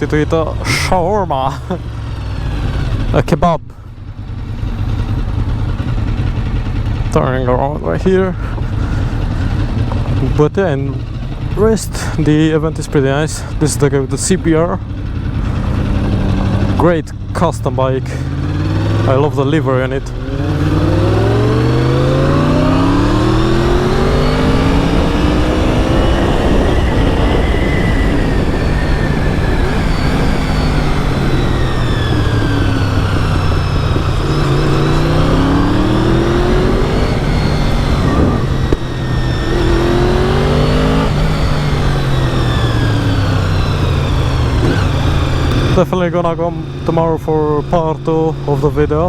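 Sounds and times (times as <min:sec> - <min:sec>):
motorcycle engine revving: 0:00.0 - 0:49.0
wind noise: 0:20.1 - 0:45.8.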